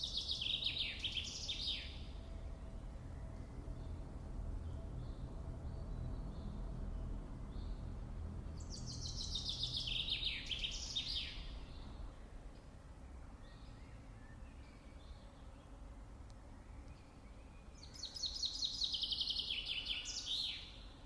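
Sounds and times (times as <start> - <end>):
low background rumble: 1.9 - 10.2.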